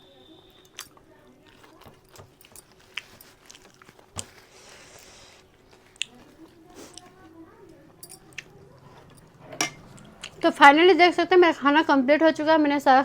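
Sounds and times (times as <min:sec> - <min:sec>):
chewing food: 0:00.7 - 0:10.5.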